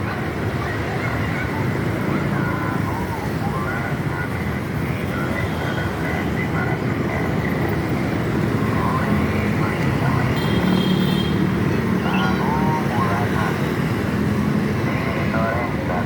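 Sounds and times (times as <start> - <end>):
faint voices: 0.0 - 10.8, 11.7 - 16.0
moving vehicle rumble: 0.0 - 16.0.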